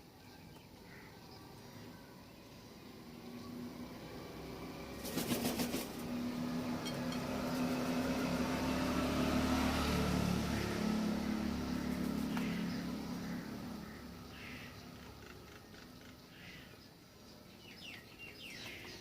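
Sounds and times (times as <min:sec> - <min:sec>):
vehicle engine humming: 0:03.0 - 0:16.0.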